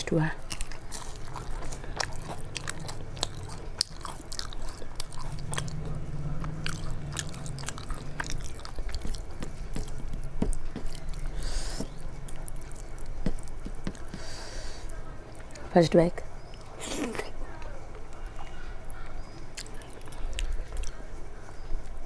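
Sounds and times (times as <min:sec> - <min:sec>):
low hum: 0:00.0 - 0:13.6
person chewing: 0:00.4 - 0:15.4, 0:18.4 - 0:22.0.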